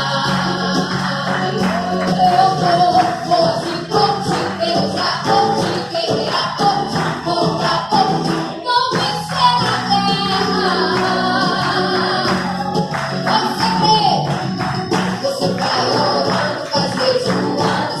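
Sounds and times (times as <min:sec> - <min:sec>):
woman singing: 0:00.0 - 0:14.2, 0:15.2 - 0:18.0
band accompaniment with percussion: 0:00.0 - 0:18.0.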